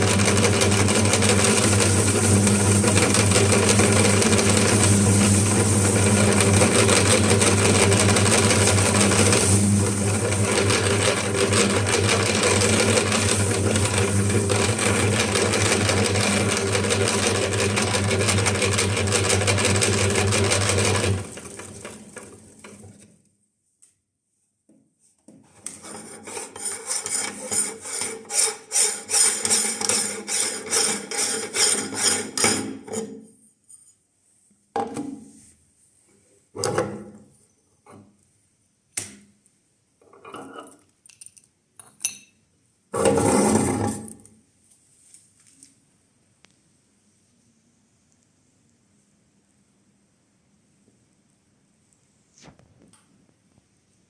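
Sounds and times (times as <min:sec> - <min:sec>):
meat grinder motor grinding: 0:00.0 - 0:22.7.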